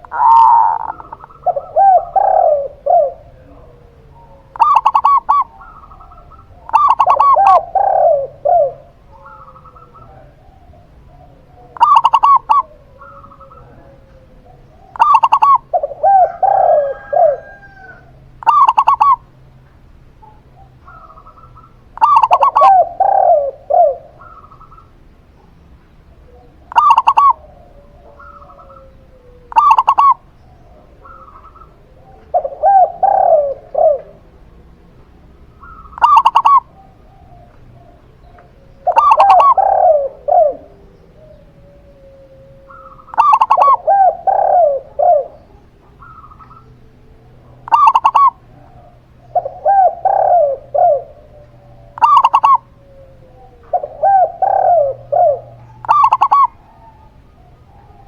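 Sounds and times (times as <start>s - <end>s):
doves cooing: 0.0s - 58.0s.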